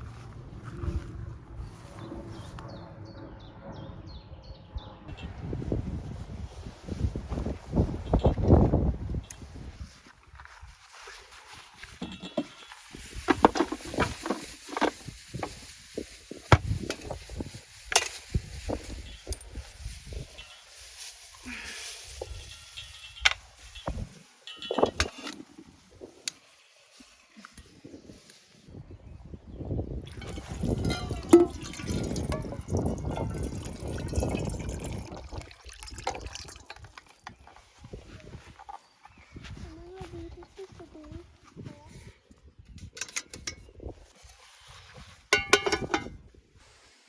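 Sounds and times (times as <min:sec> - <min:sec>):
cooking gear knocking and clattering: 0:12.0 - 0:15.1, 0:45.4 - 0:46.2
liquid pouring into container: 0:30.0 - 0:37.5.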